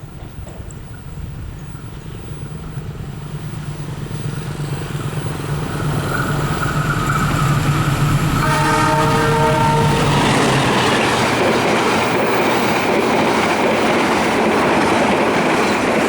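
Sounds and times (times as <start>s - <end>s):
diesel locomotive engine drone: 0.0s - 16.0s
train horn: 8.1s - 11.6s.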